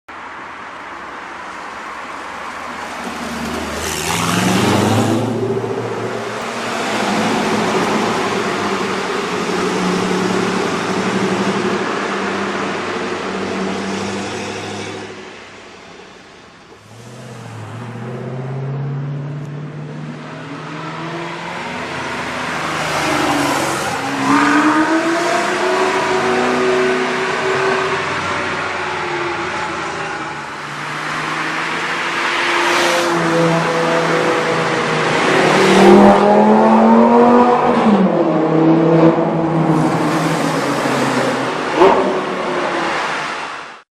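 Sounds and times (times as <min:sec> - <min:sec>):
car engine accelerating in tunnel: 0:16.8 - 0:43.5.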